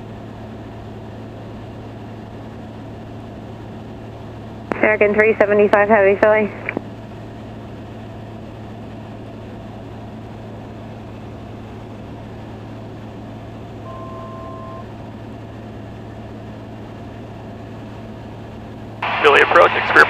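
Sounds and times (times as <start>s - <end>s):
aircraft engine drone: 0.0s - 20.0s
cockpit airflow: 2.4s - 20.0s
electronic tone: 13.8s - 15.0s.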